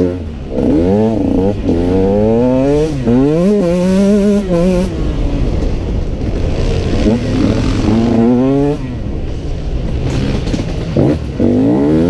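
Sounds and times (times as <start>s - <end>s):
two-stroke engine revving: 0.0s - 5.1s, 6.4s - 8.8s, 10.0s - 12.0s.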